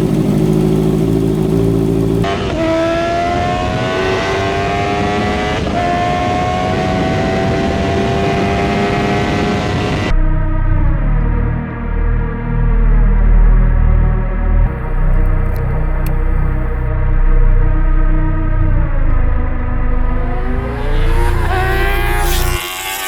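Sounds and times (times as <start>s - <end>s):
motorcycle engine accelerating: 0.0s - 10.1s, 14.7s - 16.9s, 19.9s - 23.0s.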